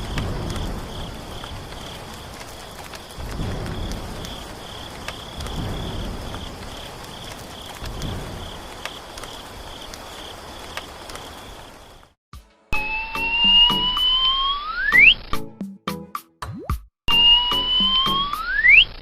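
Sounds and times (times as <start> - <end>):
cricket trilling: 0.0 - 12.1
music: 12.3 - 18.8.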